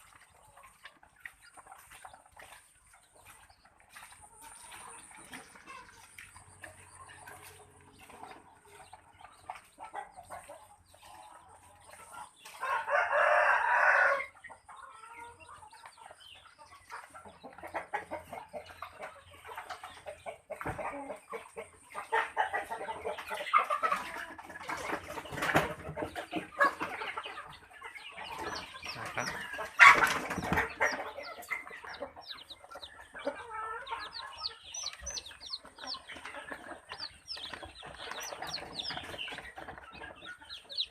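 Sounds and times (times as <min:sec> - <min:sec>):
chickens clucking: 0:00.0 - 0:40.9
rooster crowing: 0:12.6 - 0:14.3.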